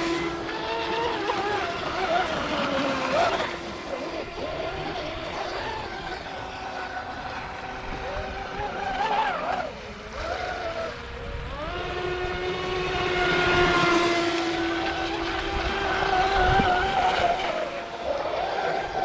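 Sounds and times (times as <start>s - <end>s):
model speedboat motors whining: 0.0s - 19.0s.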